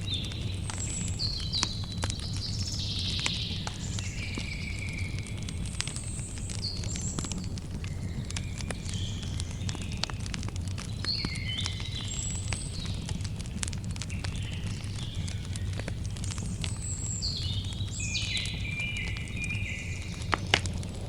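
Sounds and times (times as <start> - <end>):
songbird singing: 0.0 - 13.2, 14.0 - 21.0
campfire crackling: 0.0 - 21.0
steady low rumble: 17.4 - 21.0.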